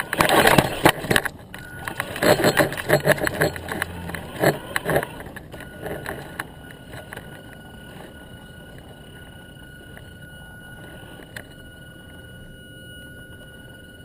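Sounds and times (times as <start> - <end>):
toy truck rattling over rough ground: 0.0 - 10.1
faint high steady tone: 0.0 - 14.0
steady motor hum: 0.0 - 14.0.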